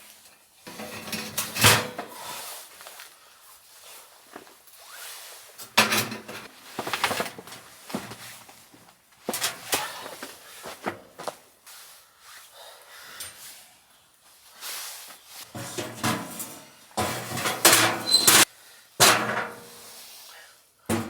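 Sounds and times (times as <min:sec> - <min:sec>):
objects knocking and clattering: 0:00.7 - 0:02.1, 0:05.8 - 0:08.2, 0:15.6 - 0:19.6.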